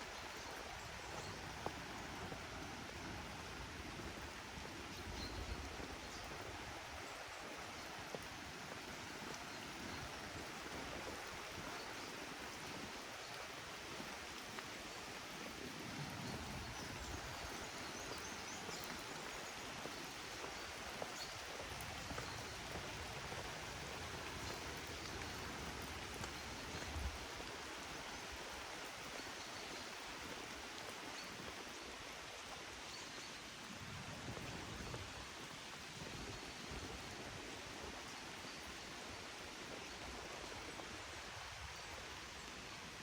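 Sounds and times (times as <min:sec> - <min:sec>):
steady rain hiss: 0:00.0 - 0:43.0
raindrop ticks: 0:05.0 - 0:33.0.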